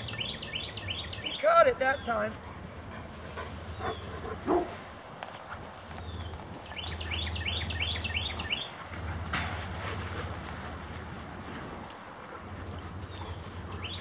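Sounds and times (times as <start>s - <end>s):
songbird whistling notes: 0.0s - 1.4s
rustling: 8.3s - 13.8s.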